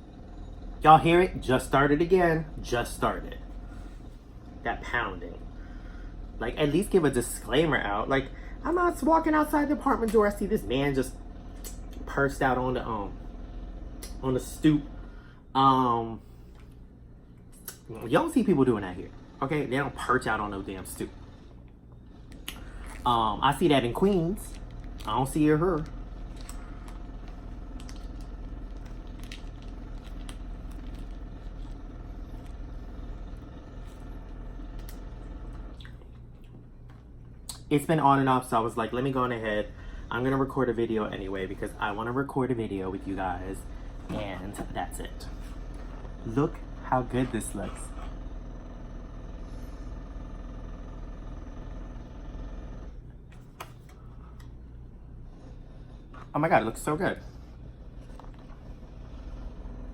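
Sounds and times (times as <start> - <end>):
pulsing construction machine drone: 0.0 - 37.0, 37.8 - 53.3, 53.9 - 59.9
steady hum: 0.0 - 59.9
food being handled and eaten: 24.4 - 37.6, 57.9 - 58.7.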